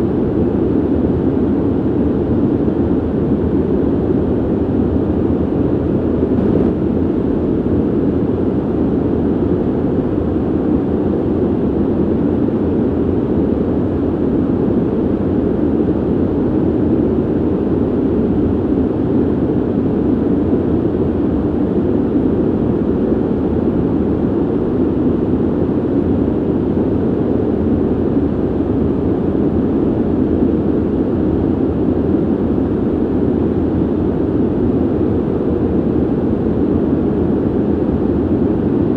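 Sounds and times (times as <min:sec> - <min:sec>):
ventilation air rushing: 0:00.0 - 0:38.9.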